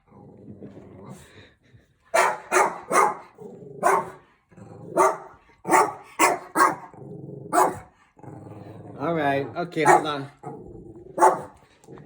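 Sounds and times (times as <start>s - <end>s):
dog barking: 2.1s - 4.2s, 4.9s - 6.9s, 7.5s - 7.9s, 9.8s - 10.3s, 11.2s - 11.6s.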